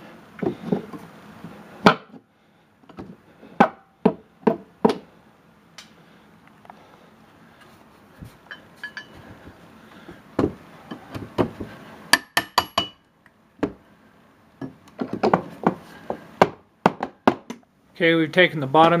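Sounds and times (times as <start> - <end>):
glassy clinks: 8.5 - 9.2.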